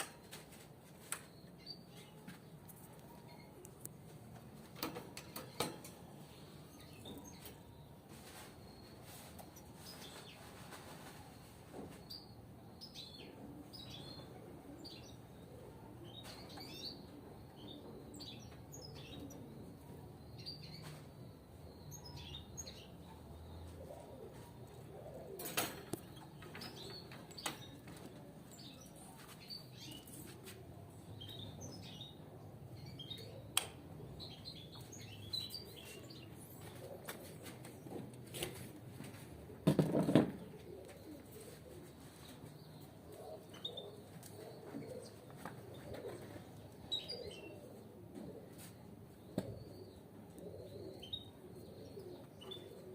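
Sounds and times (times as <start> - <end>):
rustle: 7.1 - 12.3, 39.9 - 48.9.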